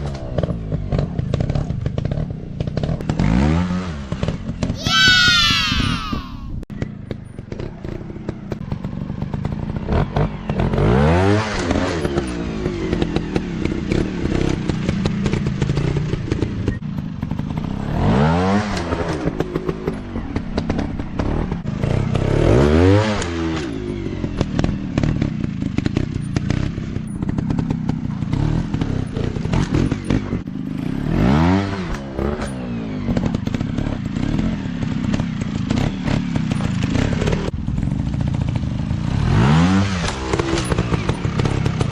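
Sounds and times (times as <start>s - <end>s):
dirt bike engine revving: 24.3s - 37.5s, 38.4s - 41.9s.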